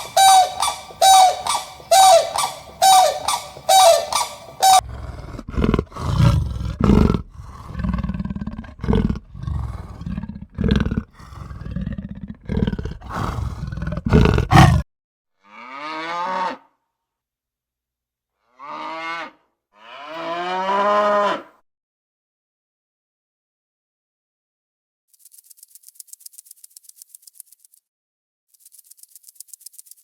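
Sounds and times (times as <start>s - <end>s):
rough noisy animal calls: 0.0s - 14.8s
cow mooing: 14.1s - 14.8s.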